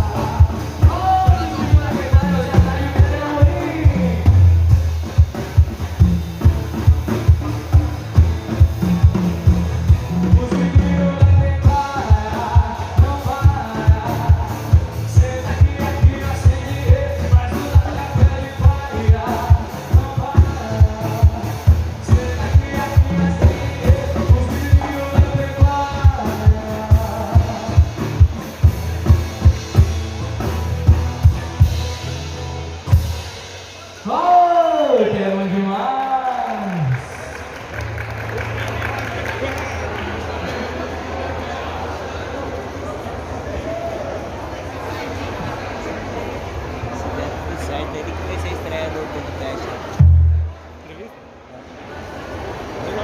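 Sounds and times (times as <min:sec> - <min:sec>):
steady drum beat: 0:00.0 - 0:34.0, 0:50.0 - 0:50.7
live band music: 0:00.0 - 0:40.6, 0:48.2 - 0:50.8
bass: 0:00.0 - 0:51.2.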